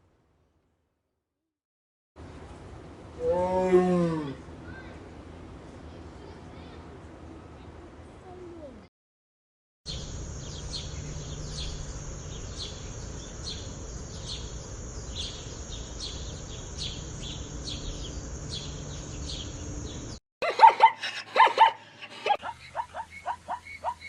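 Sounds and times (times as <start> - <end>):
small bird chirping: 9.9 - 20.2, 22.3 - 24.0
steady high hiss: 9.9 - 20.2
dog barking: 20.4 - 24.0.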